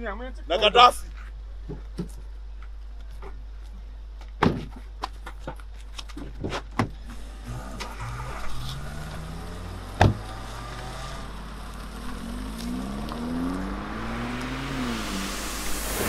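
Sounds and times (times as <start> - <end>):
car engine revving: 7.1 - 16.0
sharp thud: 9.9 - 10.5.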